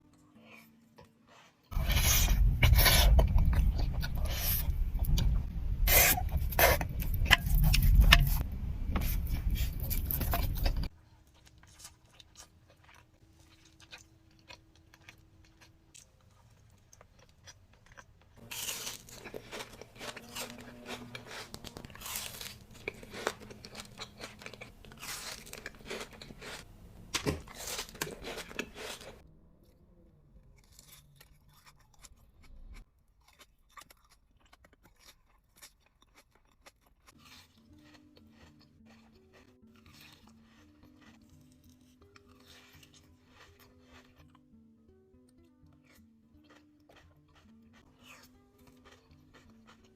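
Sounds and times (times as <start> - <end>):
chocolate crunching and chewing: 0.1 - 49.9
heavy low rumble: 1.8 - 10.9.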